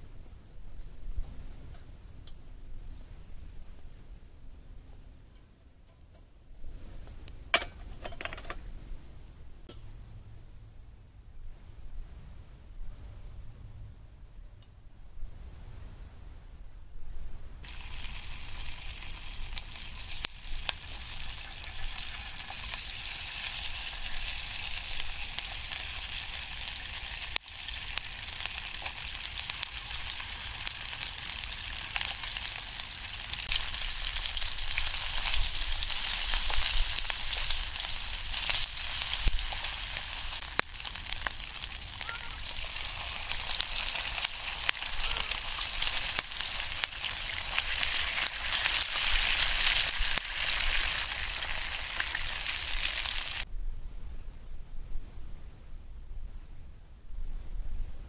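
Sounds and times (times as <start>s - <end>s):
sausage sizzling in oil: 17.6s - 53.5s.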